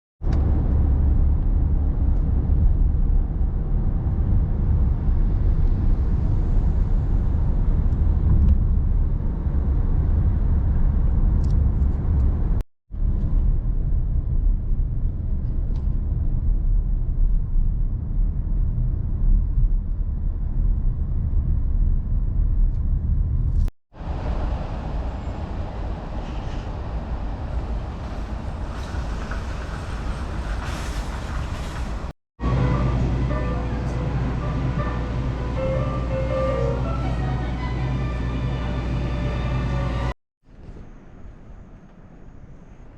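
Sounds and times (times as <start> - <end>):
car engine and road noise: 0.2 - 42.8.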